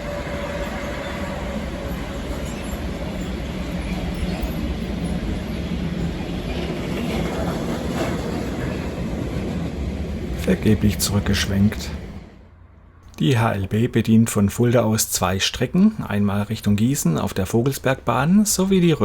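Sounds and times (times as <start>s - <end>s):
train wheels rumbling on rails: 0.0s - 12.5s.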